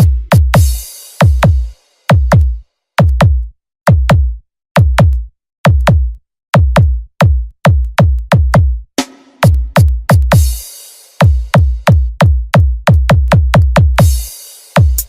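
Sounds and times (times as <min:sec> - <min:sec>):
deep drum machine kicks: 0:00.0 - 0:08.8, 0:09.4 - 0:10.6, 0:11.2 - 0:14.2.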